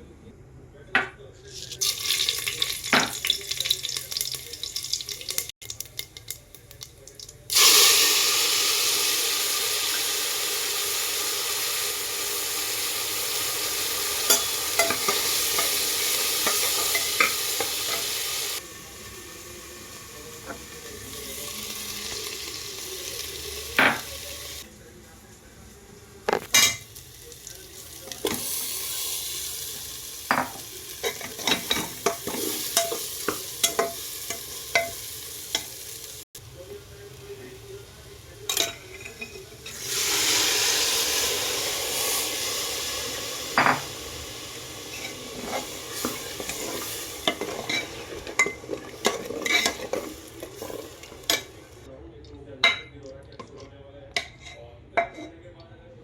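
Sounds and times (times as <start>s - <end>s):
food sizzling in oil: 1.6s - 51.9s.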